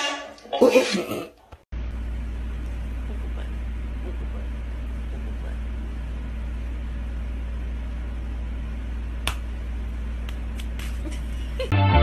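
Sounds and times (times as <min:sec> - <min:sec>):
room noise hum: 0:00.0 - 0:11.7
music: 0:11.7 - 0:12.0.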